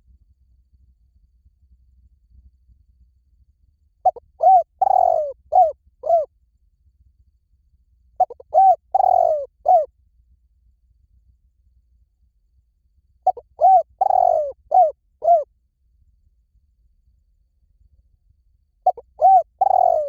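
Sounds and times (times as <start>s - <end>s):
dove cooing: 4.0s - 6.3s, 8.2s - 9.9s, 13.3s - 15.5s, 18.8s - 20.0s.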